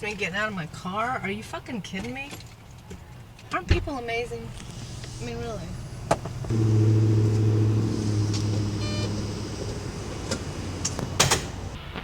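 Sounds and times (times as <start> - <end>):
car engine humming inside cabin: 4.8 - 11.8.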